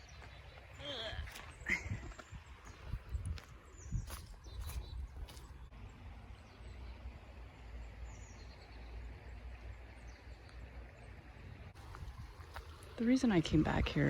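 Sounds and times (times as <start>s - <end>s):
faint bird chirp: 0.0s - 11.2s.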